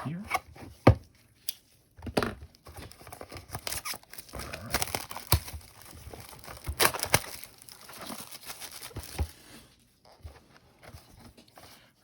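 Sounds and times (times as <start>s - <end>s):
plastic wrap crinkling: 2.5s - 9.6s.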